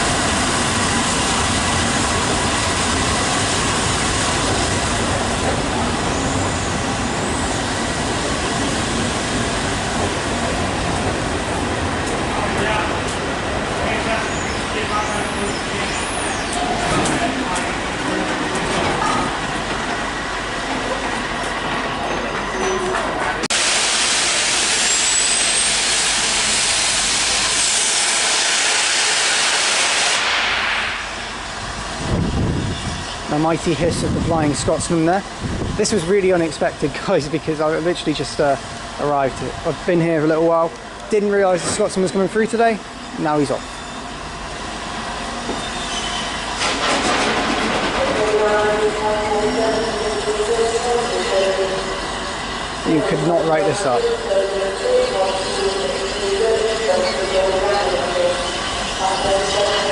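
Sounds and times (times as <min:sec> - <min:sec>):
steam locomotive hissing steam: 0:23.5 - 0:46.8, 0:48.2 - 0:59.9.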